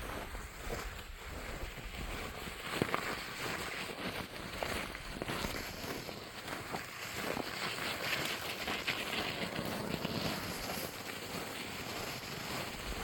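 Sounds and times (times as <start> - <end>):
wind blowing: 8.7 - 13.0.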